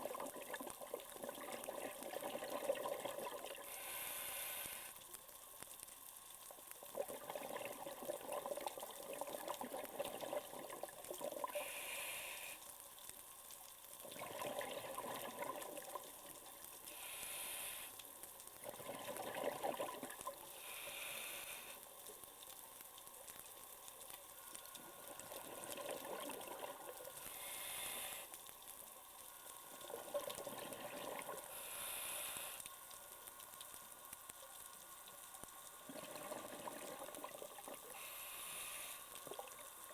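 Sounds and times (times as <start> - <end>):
diver inhaling through regulator: 3.6 - 5.0, 11.5 - 12.6, 16.9 - 18.0, 20.6 - 21.8, 27.2 - 28.4, 31.4 - 32.7, 37.8 - 39.3
exhaled bubbles rushing: 14.1 - 16.1, 18.6 - 20.3, 29.8 - 31.4, 35.9 - 37.8.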